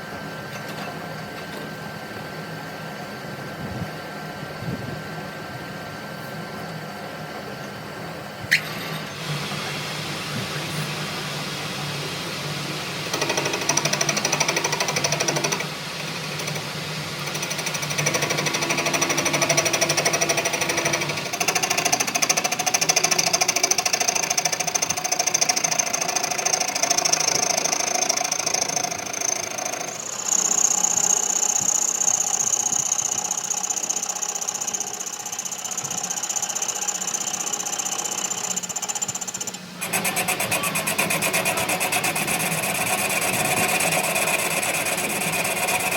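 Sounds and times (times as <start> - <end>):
power tool rattling whine: 12.4 - 45.9.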